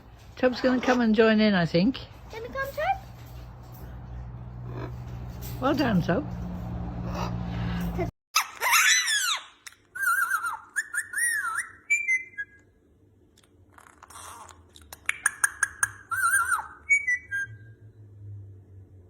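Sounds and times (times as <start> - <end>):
parrot whistling and chirping: 8.4 - 12.8, 15.0 - 17.9.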